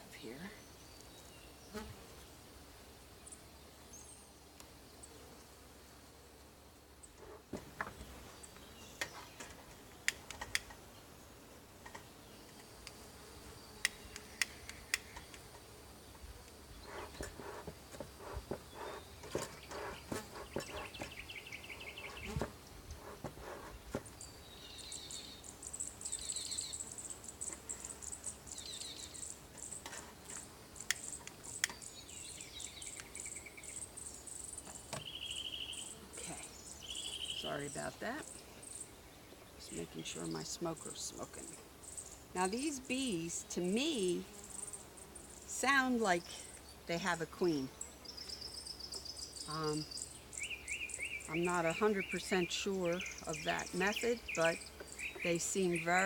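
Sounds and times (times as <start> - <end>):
insects trilling: 11.8 - 56.0.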